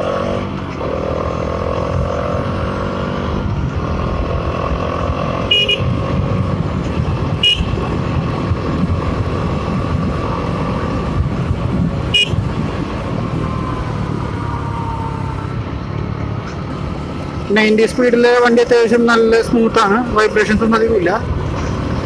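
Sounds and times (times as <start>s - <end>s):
motorcycle engine running: 0.0s - 18.5s
horn toots: 5.4s - 6.0s, 7.3s - 8.0s, 12.0s - 12.5s.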